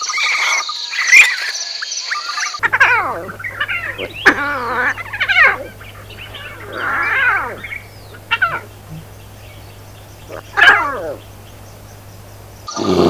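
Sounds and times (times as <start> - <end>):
lion cub mewing cries: 2.6 - 13.0.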